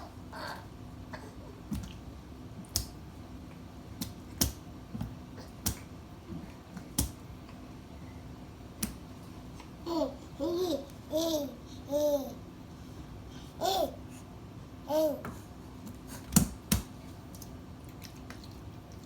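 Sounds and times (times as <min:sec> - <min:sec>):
hands slapping water: 0:01.7 - 0:03.1, 0:03.9 - 0:06.0, 0:06.7 - 0:07.3, 0:08.8 - 0:09.1, 0:16.3 - 0:19.0.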